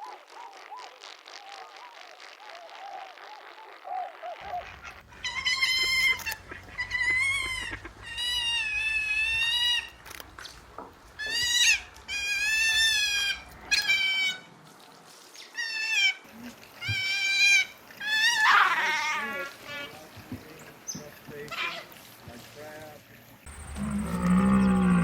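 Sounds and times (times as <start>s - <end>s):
high-pitched animal cries: 16.9s - 19.6s.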